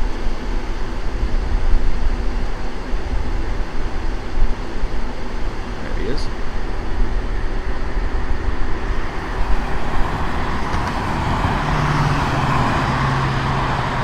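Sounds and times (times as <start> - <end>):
engine drone with low hum: 0.0 - 14.0
gusty low rumble: 6.6 - 14.0.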